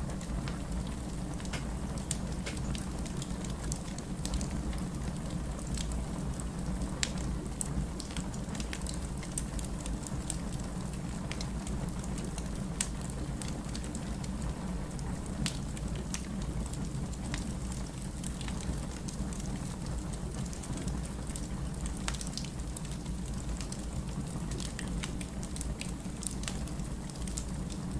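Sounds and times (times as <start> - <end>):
firewood crackling and popping: 0.1 - 4.4, 20.5 - 27.5.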